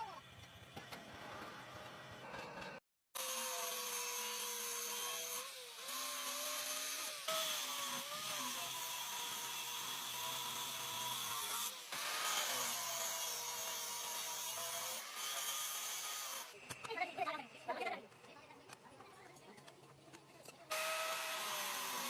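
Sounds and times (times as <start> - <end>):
power tool cutting metal: 3.2 - 16.6, 20.7 - 22.0.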